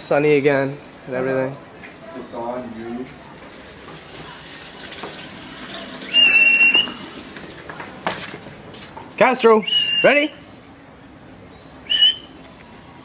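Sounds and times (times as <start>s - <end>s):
person whistling high note: 6.1s - 7.0s, 9.7s - 10.2s, 11.9s - 12.3s.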